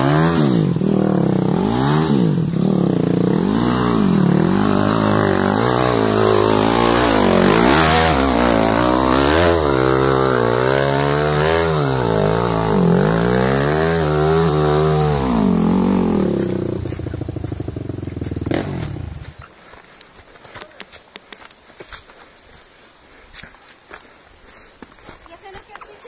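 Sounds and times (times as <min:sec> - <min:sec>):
motorcycle engine revving: 0:00.0 - 0:19.4.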